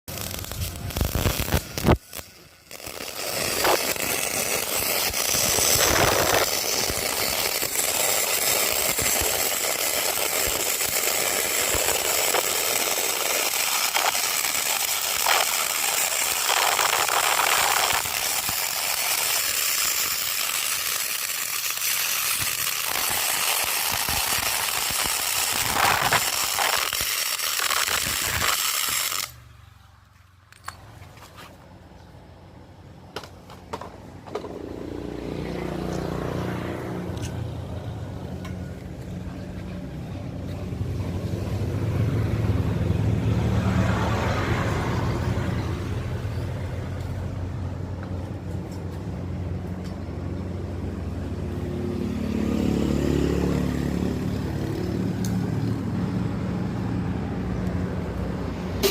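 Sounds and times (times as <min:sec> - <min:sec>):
welder arc hissing crackle: 0:00.1 - 0:29.4.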